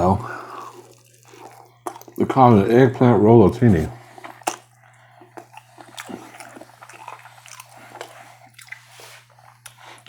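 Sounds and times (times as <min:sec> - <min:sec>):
electrical hum: 0:00.0 - 0:10.0
person chewing food: 0:00.0 - 0:10.0
wet mouth clicks and crunches: 0:00.5 - 0:02.2, 0:04.0 - 0:10.0.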